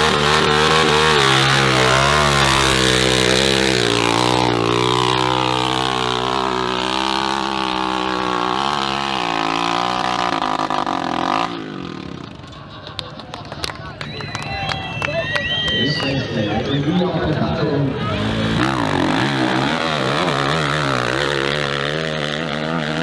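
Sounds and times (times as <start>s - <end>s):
dirt bike engine revving: 0.0s - 12.5s, 17.8s - 23.0s.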